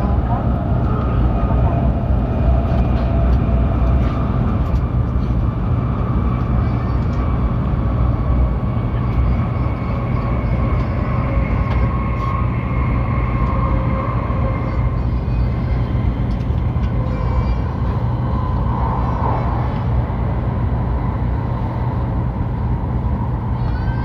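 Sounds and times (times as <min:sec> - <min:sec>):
faint steady whine: 0:00.0 - 0:24.0
train wheels rumbling on rail: 0:00.0 - 0:24.0.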